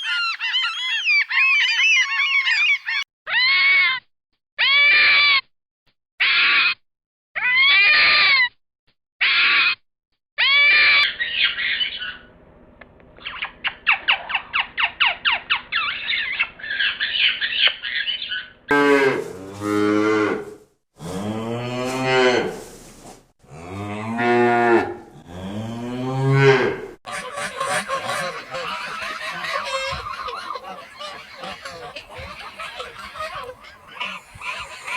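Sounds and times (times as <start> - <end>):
cattle mooing: 23.6 - 34.9
higher animal calls: 27.1 - 34.9.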